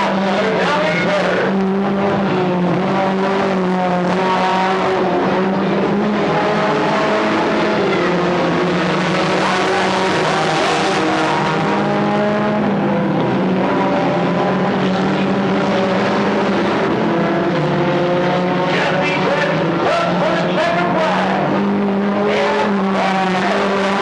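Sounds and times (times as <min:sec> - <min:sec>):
race car engines droning: 0:00.0 - 0:24.0.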